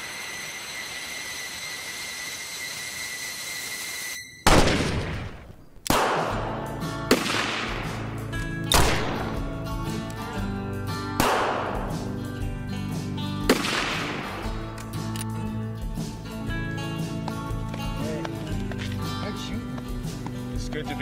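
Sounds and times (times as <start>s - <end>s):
loud gunshots: 4.4s - 9.6s, 11.2s - 12.1s, 13.4s - 14.7s
music: 6.0s - 21.0s.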